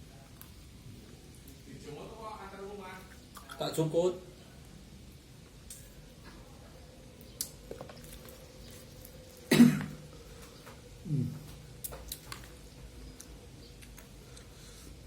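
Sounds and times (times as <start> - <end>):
small clicks of eating: 3.0 - 3.6, 7.2 - 10.8, 11.4 - 14.6
man clearing throat: 9.5 - 10.0
man coughing: 9.5 - 10.0.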